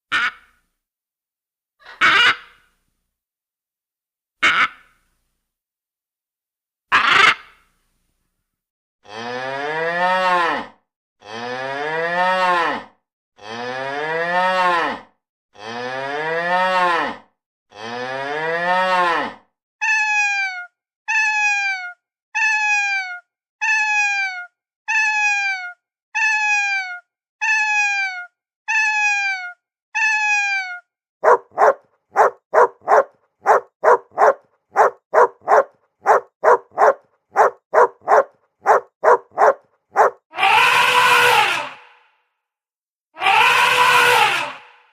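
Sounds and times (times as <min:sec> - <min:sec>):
cow mooing: 0:31.2 - 0:40.1
dog barking rapidly: 0:31.2 - 0:40.2.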